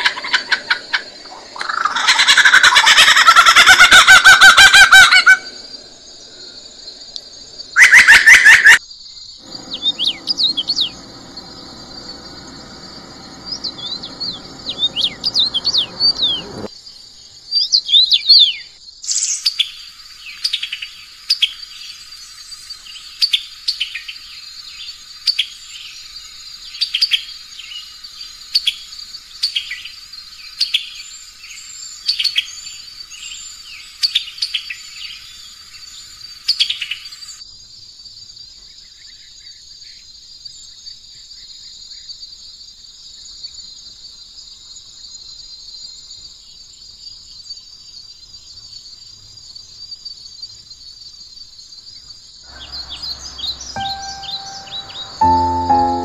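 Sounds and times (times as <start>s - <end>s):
high insect trill: 0.0s - 17.8s, 41.4s - 56.0s
songbirds singing: 0.0s - 28.0s, 51.7s - 56.0s.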